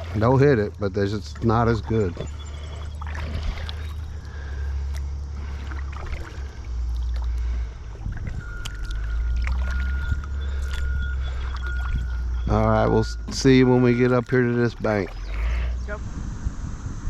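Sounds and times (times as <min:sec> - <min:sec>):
low rumble: 0:00.0 - 0:17.0
paddle strokes in water: 0:01.4 - 0:04.8, 0:05.4 - 0:12.4.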